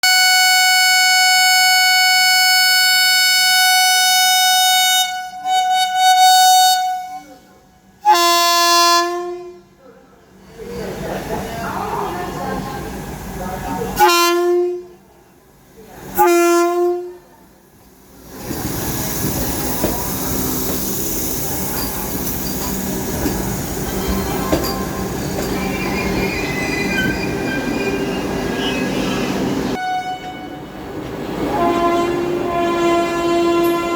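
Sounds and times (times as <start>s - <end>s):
train horn long blast: 0.0s - 9.8s, 14.0s - 15.0s, 16.2s - 17.3s, 29.7s - 30.8s, 31.4s - 33.9s
train rumbling past: 10.3s - 33.9s.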